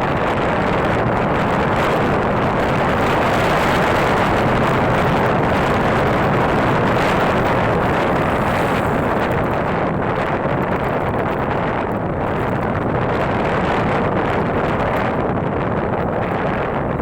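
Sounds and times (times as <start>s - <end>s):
wind on microphone: 0.0s - 17.0s
scooter engine: 0.1s - 11.2s.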